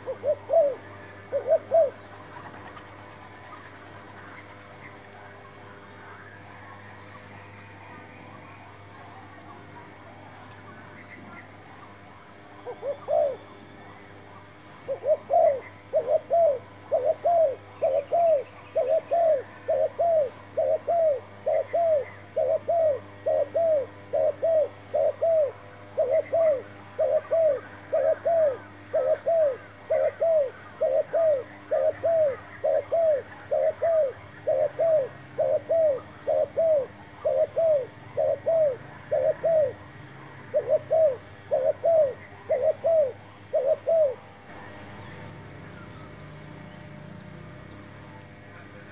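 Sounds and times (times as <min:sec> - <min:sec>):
dove cooing: 0:00.0 - 0:03.8, 0:12.6 - 0:14.0, 0:14.7 - 0:44.3
steady high hiss: 0:00.0 - 0:48.9.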